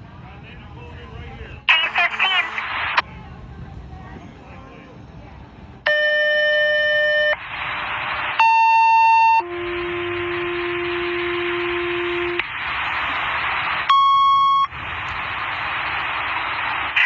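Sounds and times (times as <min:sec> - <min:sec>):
radio hiss: 0:01.4 - 0:03.0, 0:07.0 - 0:17.0
long lower paging tone: 0:05.9 - 0:07.4, 0:08.4 - 0:15.5
high pager beep: 0:13.9 - 0:14.7.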